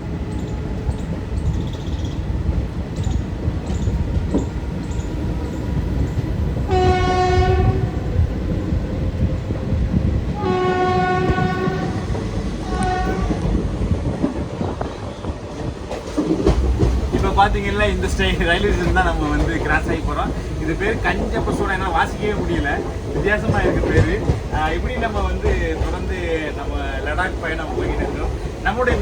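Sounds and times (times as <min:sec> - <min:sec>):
train rumble and wheel clatter: 0:00.0 - 0:29.0
locomotive horn blasts: 0:06.7 - 0:08.1, 0:10.4 - 0:12.0, 0:12.6 - 0:13.5.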